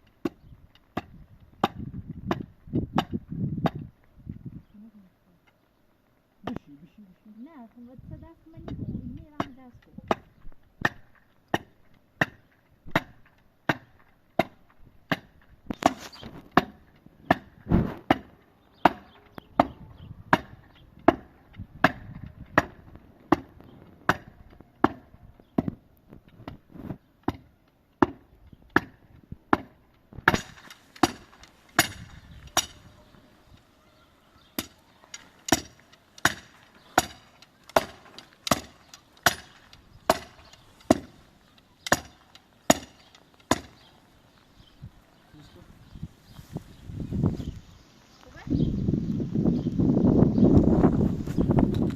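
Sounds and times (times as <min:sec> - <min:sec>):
tool striking wood: 0:00.2 - 0:03.8, 0:09.4 - 0:25.8, 0:27.2 - 0:32.9, 0:34.5 - 0:43.9.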